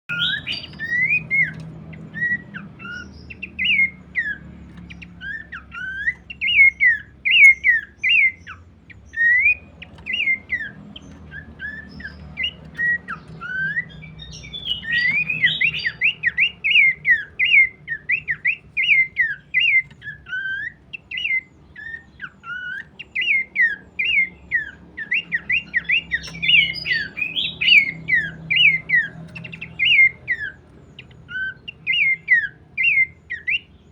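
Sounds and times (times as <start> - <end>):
bird singing whistled notes: 0.1 - 33.9.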